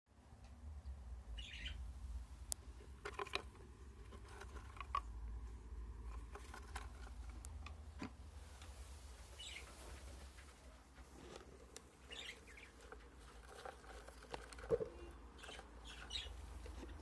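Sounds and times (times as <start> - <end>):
lovebirds chirping: 0.8 - 3.0, 9.0 - 17.0.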